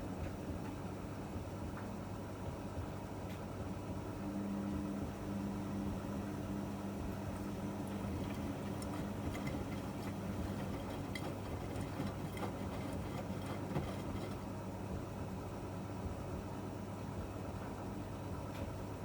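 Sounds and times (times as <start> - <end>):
washing machine motor hum: 3.6 - 19.0
drum clicking and ticking: 7.8 - 14.5.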